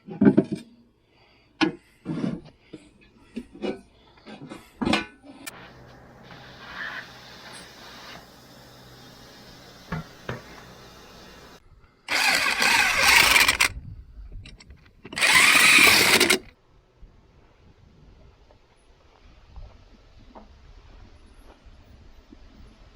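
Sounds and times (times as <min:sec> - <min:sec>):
tractor engine cranking: 0:05.5 - 0:13.7, 0:15.1 - 0:16.5
workshop noise: 0:05.5 - 0:13.7.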